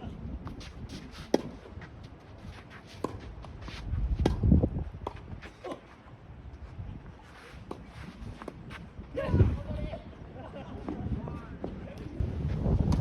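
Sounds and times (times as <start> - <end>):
tennis ball strikes: 1.2 - 1.6
wind buffeting microphone: 3.3 - 5.6, 6.2 - 13.0.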